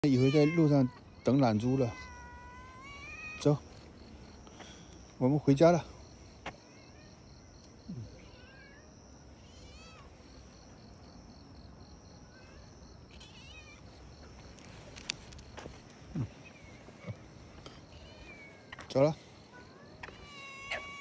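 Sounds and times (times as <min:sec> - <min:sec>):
cat meowing faintly: 0:00.0 - 0:03.8, 0:07.9 - 0:10.5, 0:12.2 - 0:18.9, 0:19.5 - 0:21.0
insects chirping: 0:00.0 - 0:21.0.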